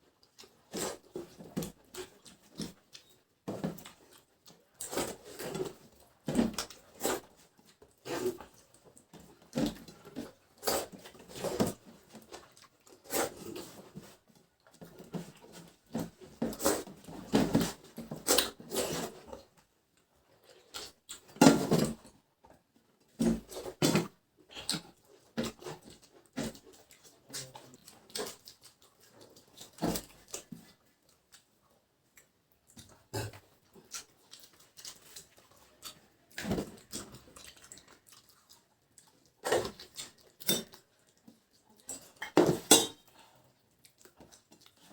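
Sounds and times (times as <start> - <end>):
chewing and smacking mouth sounds: 0.1 - 7.0, 7.6 - 14.0, 24.5 - 42.4, 43.0 - 44.9.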